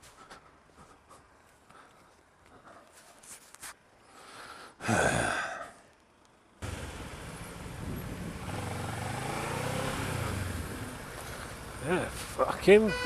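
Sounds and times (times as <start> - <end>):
motorcycle engine hum: 6.6 - 13.0
wind rushing: 7.5 - 11.0.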